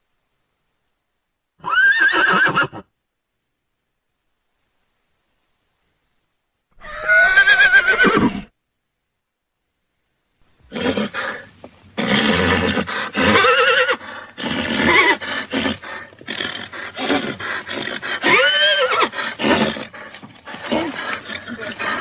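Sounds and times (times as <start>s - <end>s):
horses neighing: 1.6s - 2.8s, 6.8s - 8.5s, 10.7s - 22.0s.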